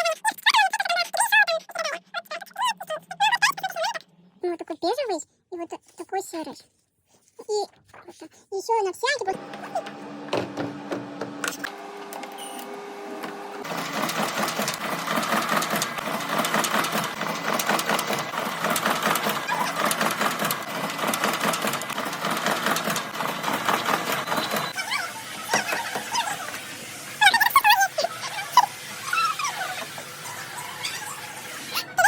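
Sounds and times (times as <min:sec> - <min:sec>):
sewing machine humming: 0:09.3 - 0:27.2
sewing machine stitching clatter: 0:09.4 - 0:24.8.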